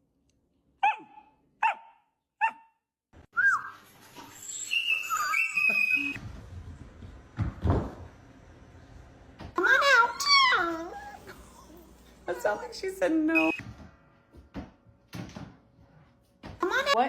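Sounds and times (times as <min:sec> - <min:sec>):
puppy barking: 0:00.8 - 0:02.8
puppy whining: 0:09.8 - 0:12.6.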